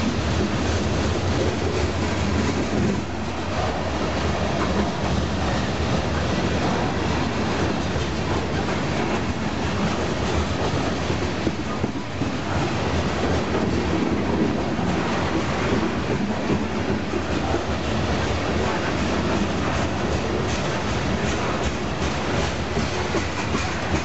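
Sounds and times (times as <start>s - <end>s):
freight train wheels on rails: 0.0s - 24.0s.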